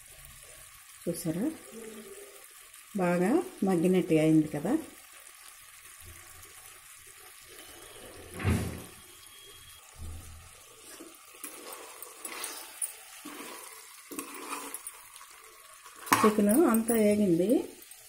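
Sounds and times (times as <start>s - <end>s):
chicken sizzling in oil: 0.0s - 18.0s.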